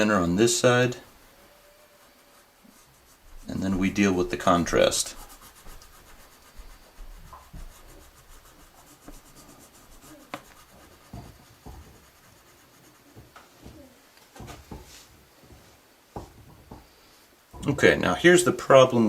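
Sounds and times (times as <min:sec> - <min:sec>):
pencil scratching on paper: 0:00.0 - 0:14.5.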